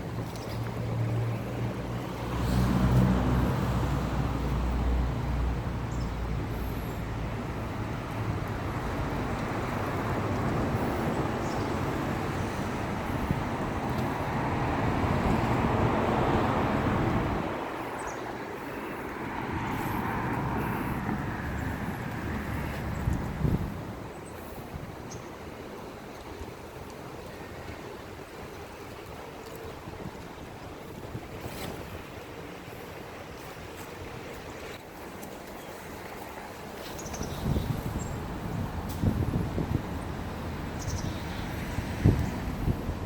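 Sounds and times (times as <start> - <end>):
road traffic going by: 0.0 - 30.0, 30.6 - 43.0
wind rumbling on microphone: 0.0 - 43.0
car passing: 0.6 - 24.6.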